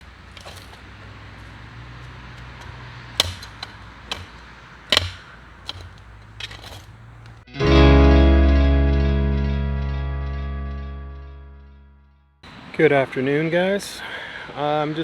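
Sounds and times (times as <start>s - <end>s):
sharp knocks or clicks: 0.0s - 7.4s.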